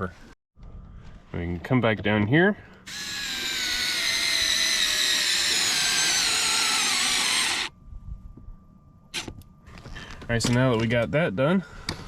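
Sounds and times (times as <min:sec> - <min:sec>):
electric screwdriver motor whine: 0:02.9 - 0:07.7.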